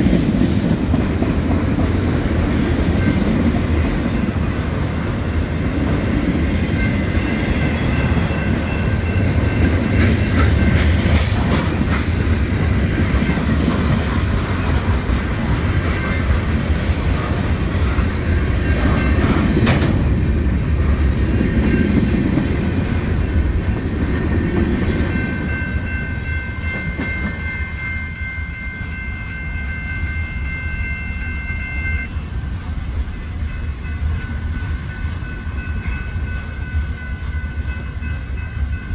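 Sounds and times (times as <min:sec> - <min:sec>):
wheels clickety-clack: 0:00.0 - 0:05.0, 0:05.6 - 0:27.6
steady high tones ringing: 0:02.6 - 0:04.5, 0:06.2 - 0:11.0, 0:14.5 - 0:16.6, 0:24.3 - 0:38.9.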